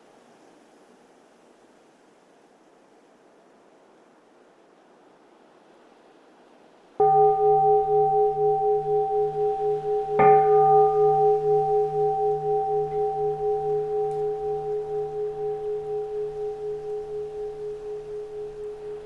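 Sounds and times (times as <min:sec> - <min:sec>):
temple bell ringing: 0:07.0 - 0:19.0.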